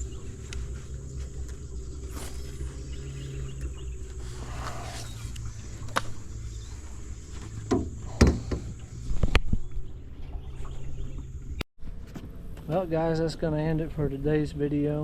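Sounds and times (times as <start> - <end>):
steady low hum: 0.0 - 14.8
sharp knocks and thumps on boat: 7.3 - 11.3.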